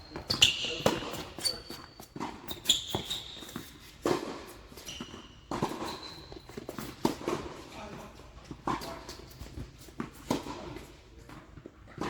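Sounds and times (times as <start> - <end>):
tennis shoes squeaking on court: 0.0 - 7.6.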